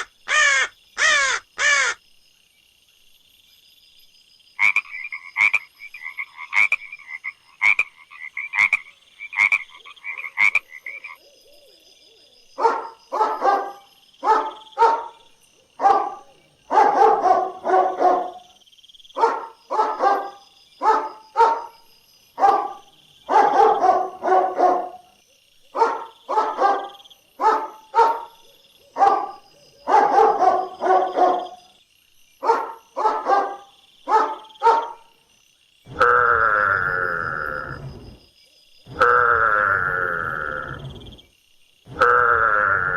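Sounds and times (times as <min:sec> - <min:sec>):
frog croaking: 0:00.0 - 0:02.0, 0:04.6 - 0:18.5, 0:35.9 - 0:38.2, 0:38.8 - 0:42.9
dog barking: 0:12.6 - 0:15.2, 0:15.8 - 0:18.5, 0:19.2 - 0:21.8, 0:22.4 - 0:25.1, 0:25.7 - 0:31.6, 0:32.4 - 0:35.1
low animal call: 0:38.9 - 0:41.2.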